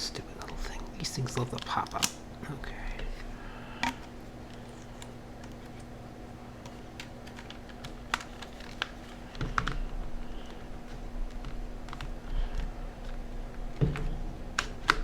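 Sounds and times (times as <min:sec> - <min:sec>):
steady low hum: 0:00.0 - 0:15.0
plastic parts clicking: 0:06.6 - 0:09.9.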